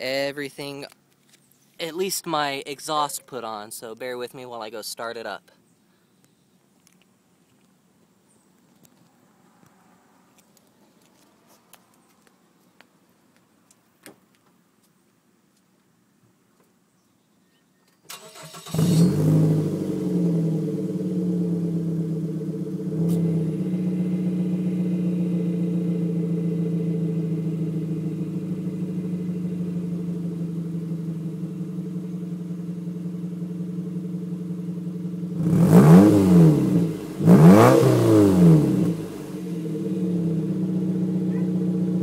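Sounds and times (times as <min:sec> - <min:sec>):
car engine revving: 0:18.1 - 0:42.0
car engine starting and idling: 0:18.1 - 0:42.0.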